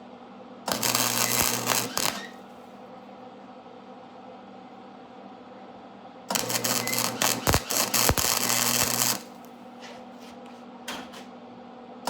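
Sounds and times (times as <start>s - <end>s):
steady electrical hum: 0.0s - 12.0s
welding arc crackling: 0.7s - 2.4s, 6.3s - 9.5s.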